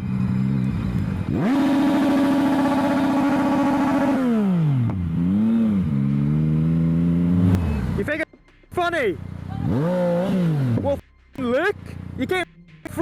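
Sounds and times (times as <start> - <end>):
motorcycle engine revving: 0.0 - 8.2, 9.0 - 11.0.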